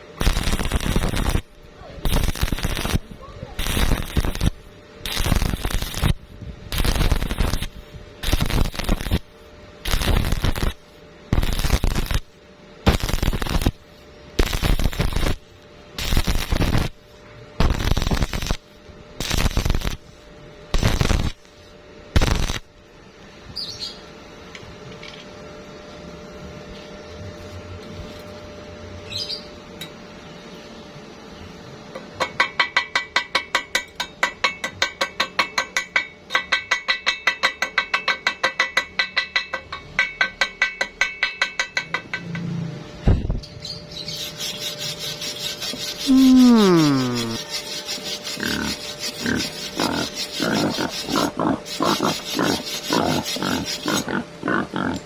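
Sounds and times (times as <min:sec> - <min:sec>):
welding arc crackling: 0:00.0 - 0:21.6, 0:22.2 - 0:22.7, 0:44.1 - 0:55.0
faint steady hum: 0:00.0 - 0:55.0.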